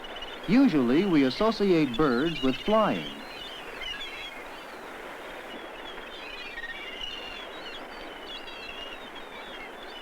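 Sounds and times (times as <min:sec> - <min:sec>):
background hiss: 0:00.0 - 0:07.3
small birds chirping: 0:00.1 - 0:04.8.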